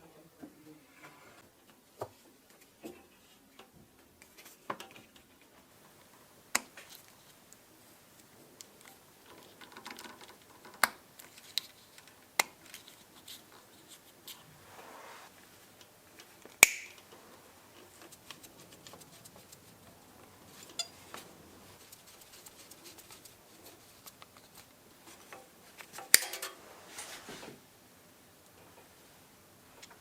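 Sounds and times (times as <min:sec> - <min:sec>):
soft rustle: 0:11.1 - 0:27.6.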